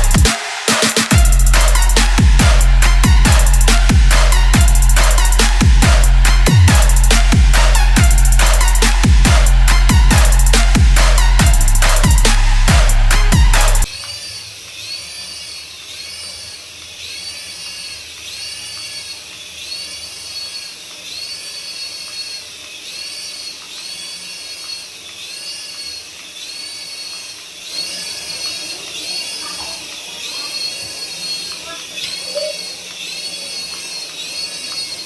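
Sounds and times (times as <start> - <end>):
music track: 0.0 - 13.9
toy motor whining: 0.0 - 35.0.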